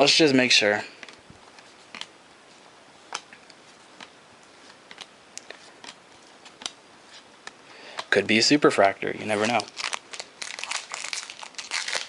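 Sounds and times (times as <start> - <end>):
cards being flipped through: 1.0 - 2.1, 3.9 - 8.1, 9.3 - 12.0.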